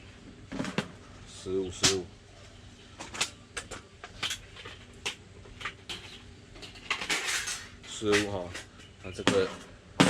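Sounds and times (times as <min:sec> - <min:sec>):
metal panels clinking: 0:05.7 - 0:09.7.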